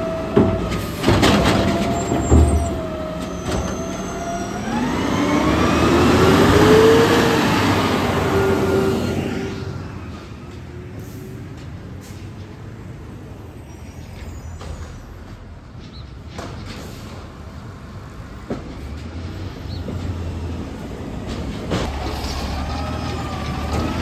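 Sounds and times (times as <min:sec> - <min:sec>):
garbage truck engine drone: 0:00.0 - 0:15.3, 0:16.4 - 0:24.0.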